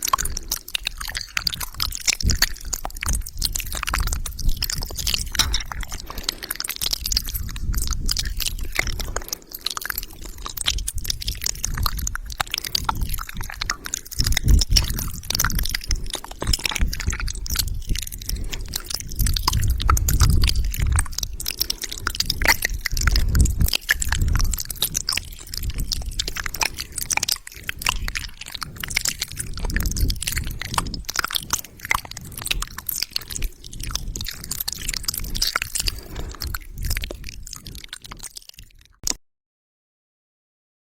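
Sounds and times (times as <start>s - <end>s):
lip smacks: 0.0s - 39.2s
squishing spit noises: 0.0s - 39.2s
tongue clicks: 0.0s - 39.2s
soft low thumps: 10.5s - 32.8s.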